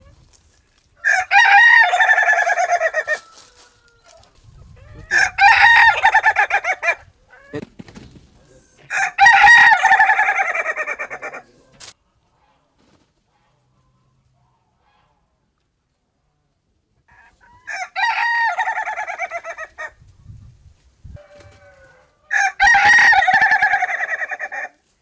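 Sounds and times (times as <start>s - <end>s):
rooster crowing: 1.0s - 4.4s, 5.0s - 7.0s, 8.9s - 11.4s, 17.6s - 19.9s, 21.2s - 24.7s.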